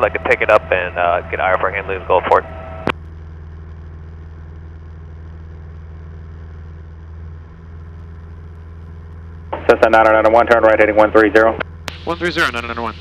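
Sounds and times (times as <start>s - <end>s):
propeller plane engine droning: 0.0s - 13.0s.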